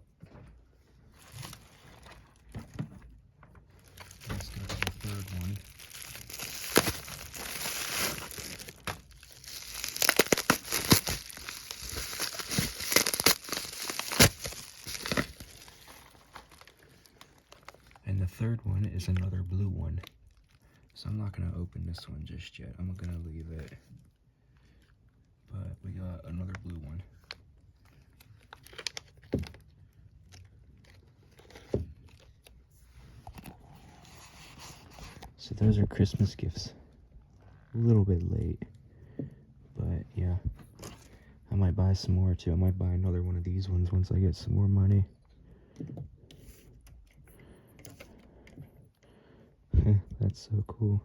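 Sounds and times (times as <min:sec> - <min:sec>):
packaging crinkling and rustling: 0:01.1 - 0:02.8, 0:03.7 - 0:18.0, 0:26.4 - 0:35.4.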